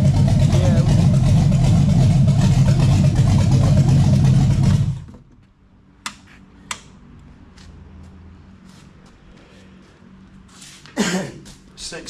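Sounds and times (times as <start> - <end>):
engine running and shutting off: 0.0 - 5.5.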